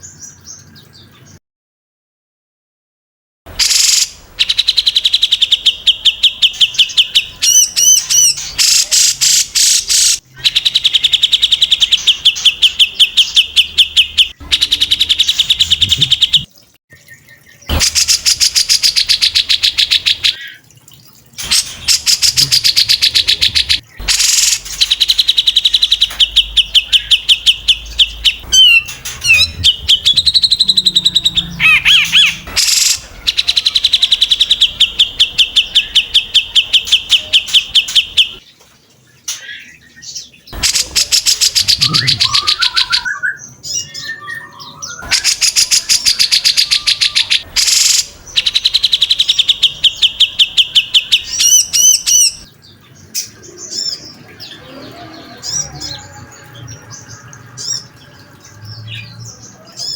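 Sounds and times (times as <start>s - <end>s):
songbird rapid repeated notes: 17.7s - 20.4s, 21.4s - 38.4s
bird sweeping whistled notes: 28.5s - 33.0s.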